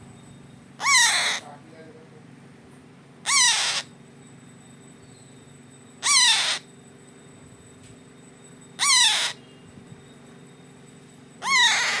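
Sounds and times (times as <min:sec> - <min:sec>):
parrot chick calling: 0:00.8 - 0:01.5, 0:03.2 - 0:03.9, 0:06.0 - 0:06.7, 0:08.8 - 0:09.4, 0:11.4 - 0:12.0.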